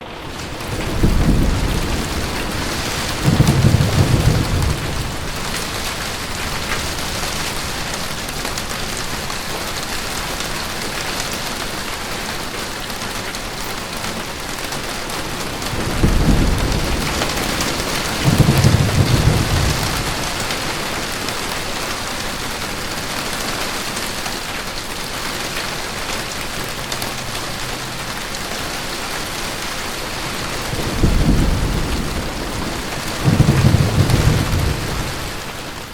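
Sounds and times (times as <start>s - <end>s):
thunder rolling: 0.0s - 9.3s, 15.1s - 21.6s, 30.2s - 35.9s
heavy rain on a vehicle roof: 0.0s - 35.9s.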